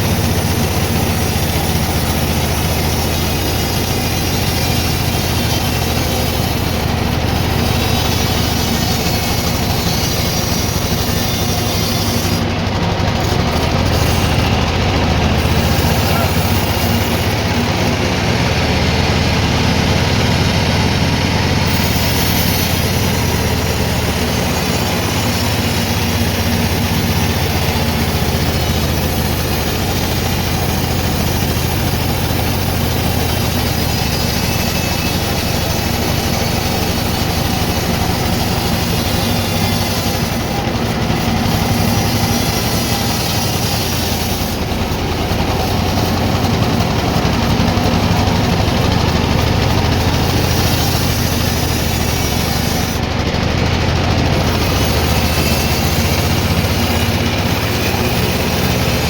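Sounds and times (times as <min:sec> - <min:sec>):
sawmill machinery running: 0:00.0 - 0:59.0.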